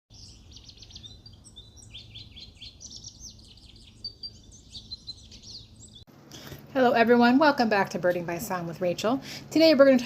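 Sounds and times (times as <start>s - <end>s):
finch singing: 0.1s - 6.1s
low background hum: 0.1s - 10.0s.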